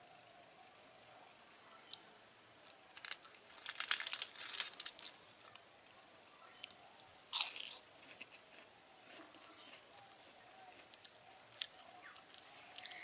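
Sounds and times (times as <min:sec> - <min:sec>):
chewing crisp fried food: 0:03.0 - 0:05.6, 0:06.6 - 0:13.0.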